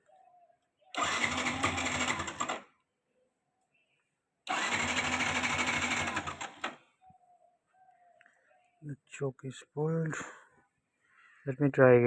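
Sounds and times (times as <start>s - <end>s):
motorcycle engine cranking: 1.0s - 2.7s, 4.5s - 6.8s.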